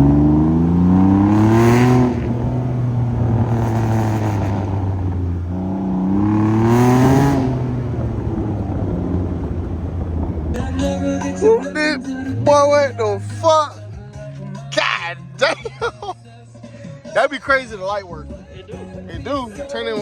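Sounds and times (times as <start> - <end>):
motorcycle engine revving: 0.0 - 13.5.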